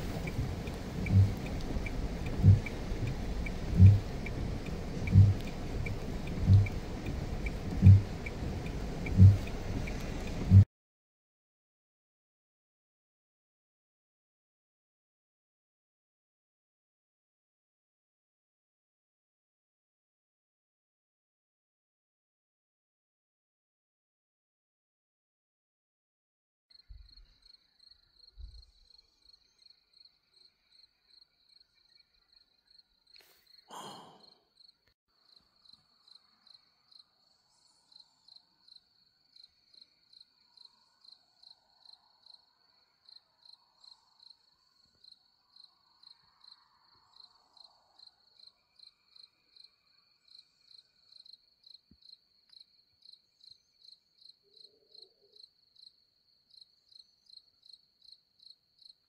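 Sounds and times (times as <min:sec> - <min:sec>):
cricket chirping: 0:26.7 - 0:59.0.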